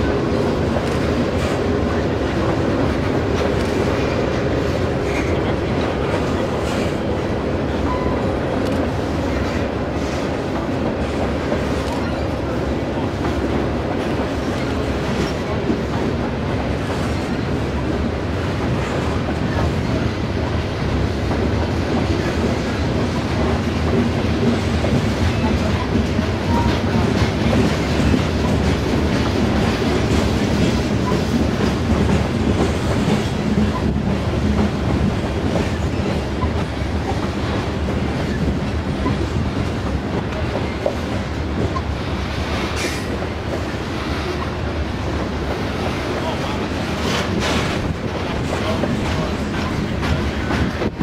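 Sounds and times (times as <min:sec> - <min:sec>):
freight train wheels rumbling: 0:00.0 - 0:51.0.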